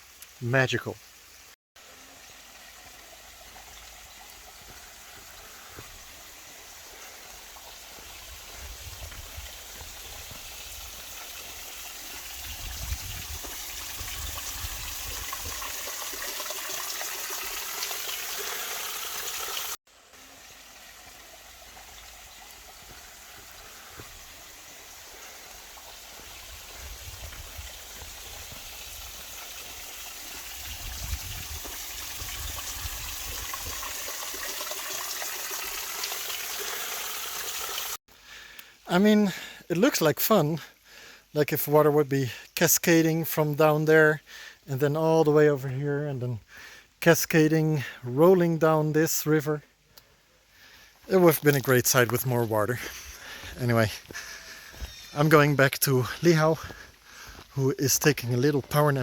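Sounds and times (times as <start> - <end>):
small waterfall splashing: 1.0 - 38.0.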